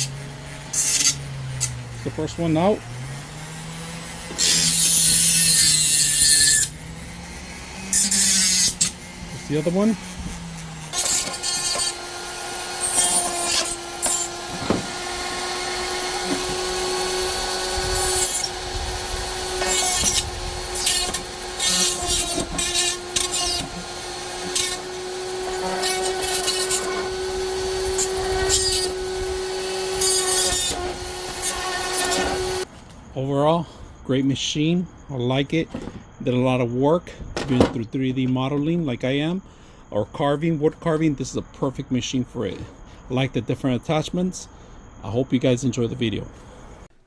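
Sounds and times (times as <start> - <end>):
cutting disc grinding: 0.0 - 32.7
rotary tool whining: 0.0 - 32.7.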